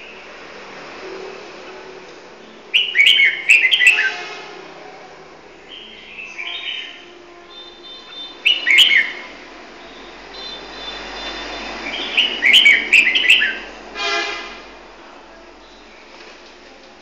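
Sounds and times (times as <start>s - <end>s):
bird singing whistled notes: 2.7s - 4.2s, 5.7s - 13.8s.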